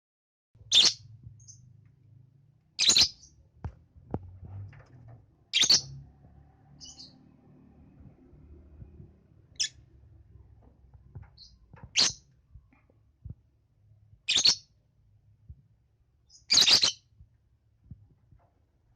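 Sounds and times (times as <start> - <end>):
lovebird chirping: 0.7 - 1.6, 2.8 - 3.4, 5.5 - 6.0, 6.8 - 7.2, 9.5 - 9.8, 11.4 - 12.3, 14.2 - 14.7, 16.2 - 17.1.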